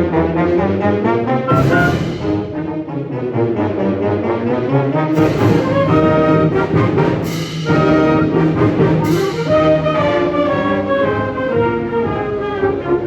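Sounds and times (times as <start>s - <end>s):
wind band playing chords: 0.0s - 13.0s
cymbal crashes: 1.6s - 2.7s, 7.2s - 7.8s.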